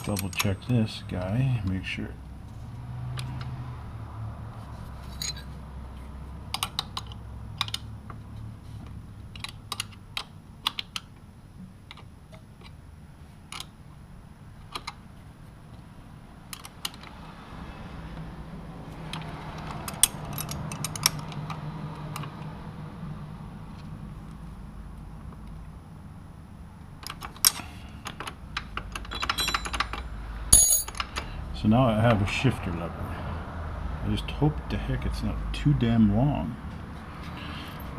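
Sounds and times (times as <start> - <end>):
hand tools clicking on metal parts: 0.0 - 0.7, 5.2 - 5.5, 19.1 - 22.3, 27.0 - 31.3.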